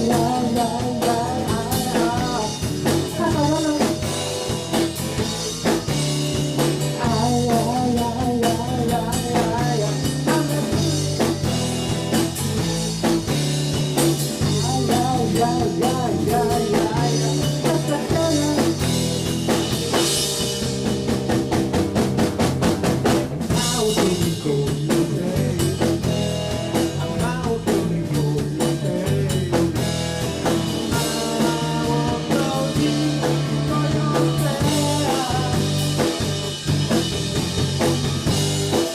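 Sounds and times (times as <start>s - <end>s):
person singing: 0.0s - 4.2s, 6.9s - 12.0s, 14.4s - 19.2s, 23.5s - 26.2s, 26.8s - 29.9s, 30.8s - 36.3s
rock band playing live: 0.0s - 38.9s.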